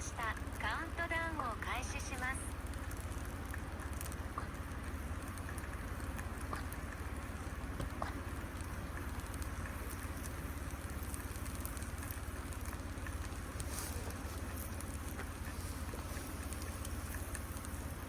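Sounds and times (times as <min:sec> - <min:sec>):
steady low outdoor rumble: 0:00.0 - 0:18.0
faint scattered ticks: 0:00.1 - 0:18.0.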